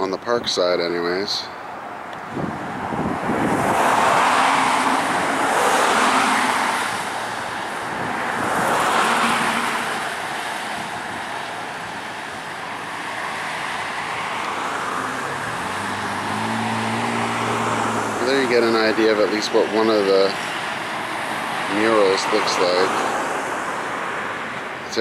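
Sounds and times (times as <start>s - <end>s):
cars passing by: 0.0s - 25.0s.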